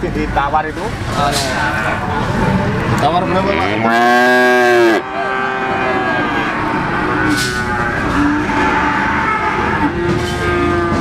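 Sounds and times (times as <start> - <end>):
distant voices: 0.0 - 11.0
vehicle engines running: 5.0 - 11.0.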